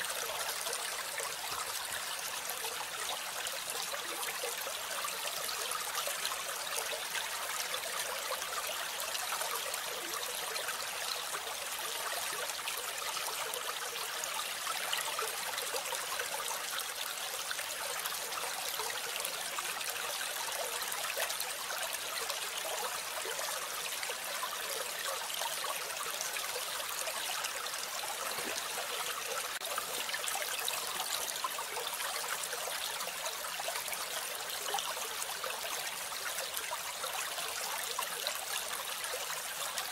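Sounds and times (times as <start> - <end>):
water trickling: 14.4 - 39.9.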